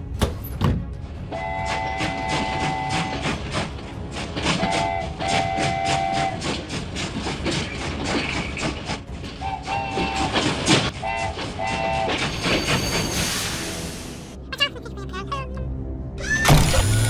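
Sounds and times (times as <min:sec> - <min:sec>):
train wheels clickety-clack: 0:00.3 - 0:13.4
train whistle toots: 0:01.3 - 0:03.4, 0:04.4 - 0:06.6, 0:09.4 - 0:13.2.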